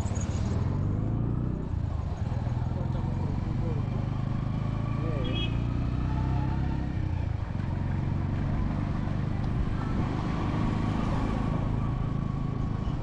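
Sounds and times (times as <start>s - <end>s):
road traffic engines rumbling: 0.0s - 13.0s.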